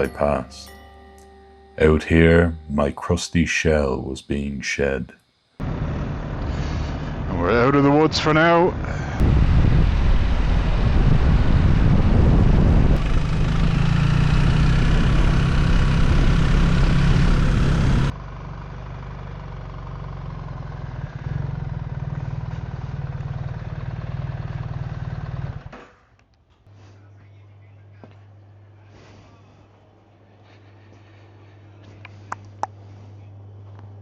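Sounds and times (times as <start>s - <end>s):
motorcycle engine running: 9.2s - 25.8s.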